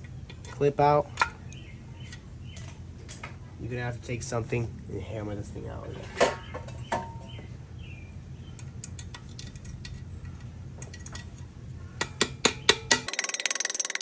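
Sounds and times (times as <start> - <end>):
low steady hum: 0.0 - 14.0
hammer tapping metal: 12.0 - 14.0.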